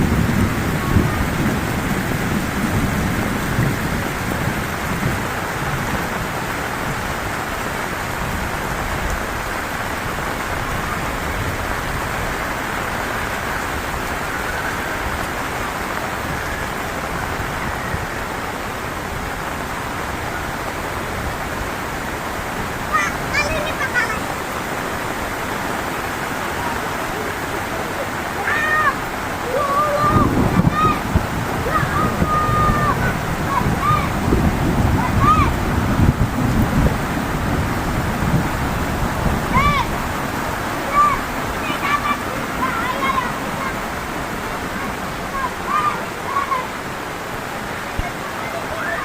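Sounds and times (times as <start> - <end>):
low rumble of thunder: 0.0 - 7.0, 30.1 - 40.6
heavy rain: 0.0 - 49.0.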